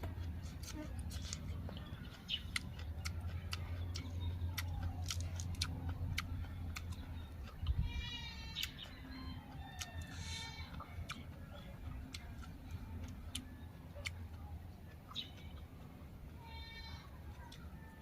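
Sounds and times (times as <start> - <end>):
crunching of vegetables being chewed: 0.0 - 18.0
low hum: 0.0 - 18.0
animal bleating: 7.7 - 8.8, 10.1 - 10.8, 16.3 - 17.2.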